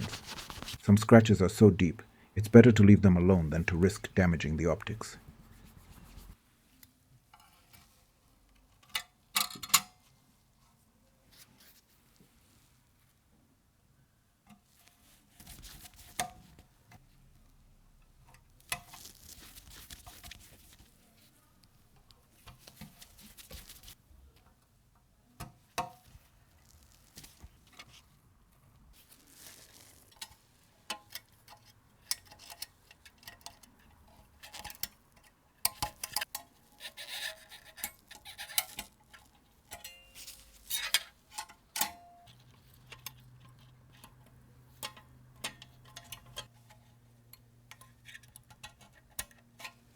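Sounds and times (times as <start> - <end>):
rubbing or wiping: 0.0 - 0.8, 5.2 - 6.4
small parts clicking and tapping: 29.5 - 49.9.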